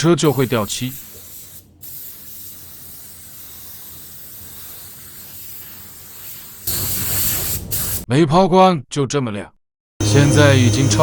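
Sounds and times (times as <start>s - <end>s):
paint spray gun hissing: 0.0s - 8.0s.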